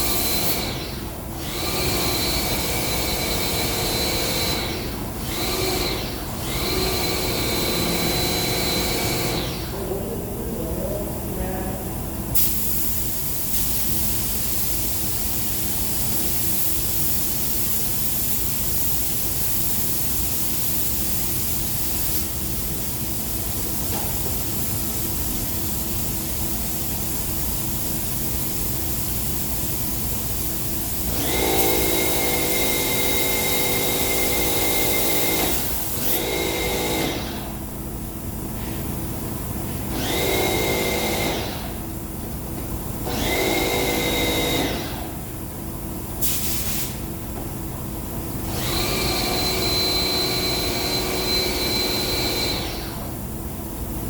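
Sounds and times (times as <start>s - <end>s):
air spray gun hissing: 12.4s - 37.7s, 46.2s - 47.2s.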